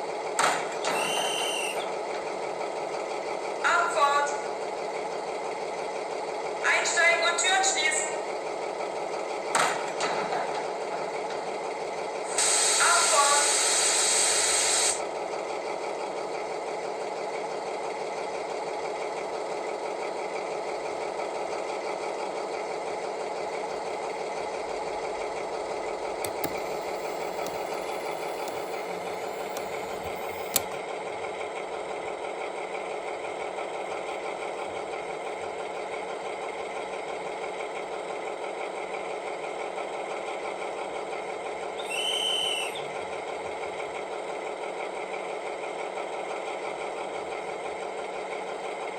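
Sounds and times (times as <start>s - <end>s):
model locomotive engine idling: 0.0s - 48.9s
click: 26.2s - 30.8s.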